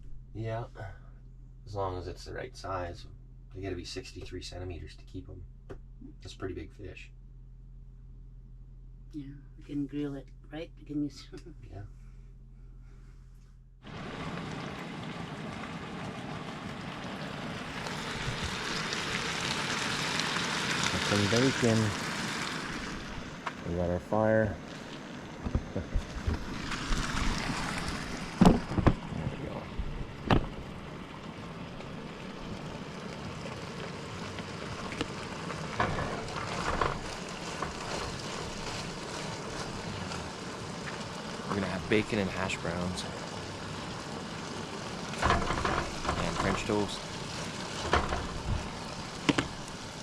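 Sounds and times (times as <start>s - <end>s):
bacon sizzling in a frying pan: 13.9s - 23.4s, 24.6s - 29.1s, 29.7s - 50.0s.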